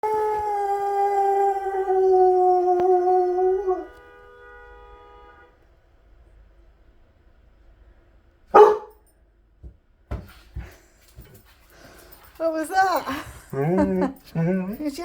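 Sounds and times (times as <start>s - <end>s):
dog howling: 0.0s - 3.9s.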